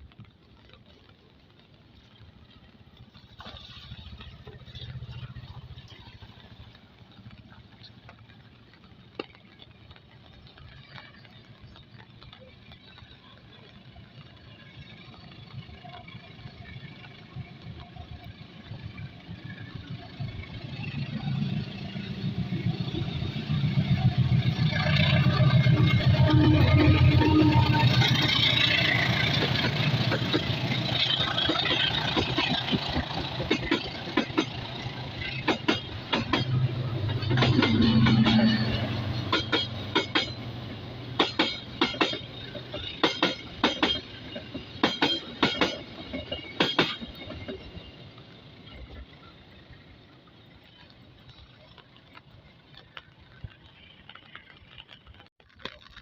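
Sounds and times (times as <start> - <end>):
train engine rumble: 0.0 - 55.3.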